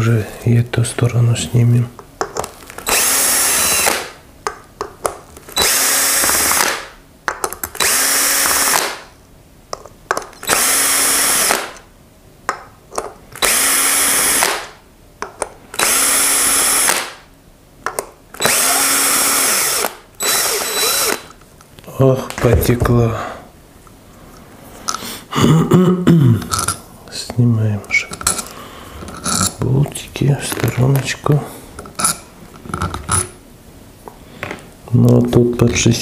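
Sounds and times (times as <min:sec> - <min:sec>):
cordless drill motor whirring: 0:02.8 - 0:04.2, 0:05.5 - 0:06.8, 0:07.8 - 0:09.0, 0:10.4 - 0:11.8, 0:13.4 - 0:14.7, 0:15.8 - 0:17.2, 0:18.4 - 0:21.4
clicks of screws and metal parts: 0:27.9 - 0:29.6, 0:31.8 - 0:33.3.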